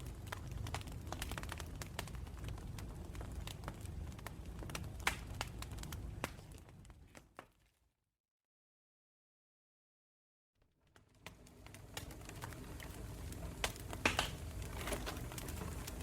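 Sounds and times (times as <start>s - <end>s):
low rumble of burning: 0.0s - 7.4s, 10.8s - 16.0s
campfire crackling and popping: 0.0s - 7.6s, 10.8s - 16.0s.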